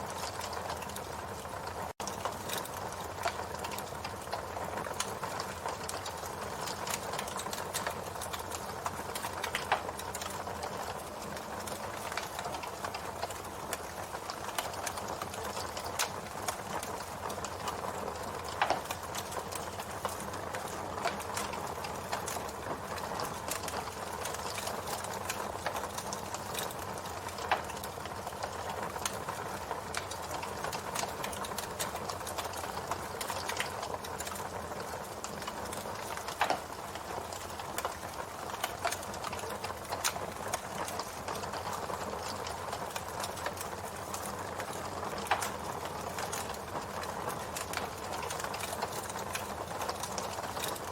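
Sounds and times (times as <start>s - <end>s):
campfire crackling and popping: 0.0s - 50.9s.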